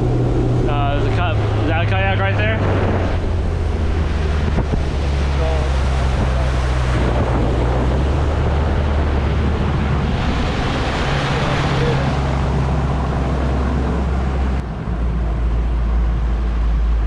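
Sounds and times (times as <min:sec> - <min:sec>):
outboard motor drone: 0:00.0 - 0:17.0
rushing water: 0:00.0 - 0:17.0
wind buffeting microphone: 0:00.0 - 0:17.0.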